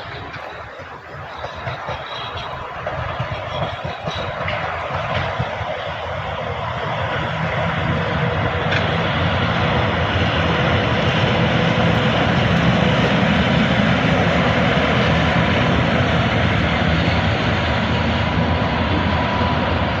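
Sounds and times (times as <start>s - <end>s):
electric locomotive running: 0.0s - 20.0s.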